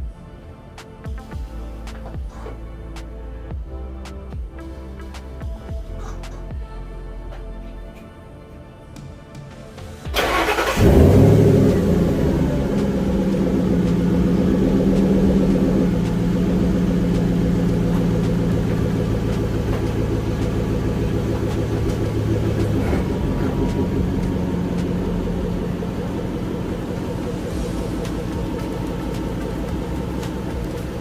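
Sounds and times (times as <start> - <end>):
truck engine idling: 10.1 - 31.0.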